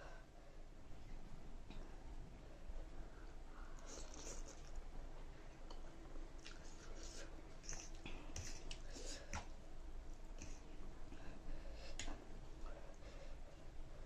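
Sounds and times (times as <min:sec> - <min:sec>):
person chewing noodles: 0:03.8 - 0:04.8.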